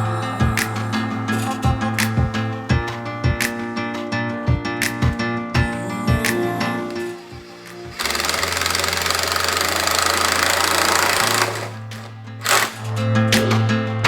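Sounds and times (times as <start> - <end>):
background music: 0.0 - 14.0
cordless screw gun buzzing: 7.8 - 12.8.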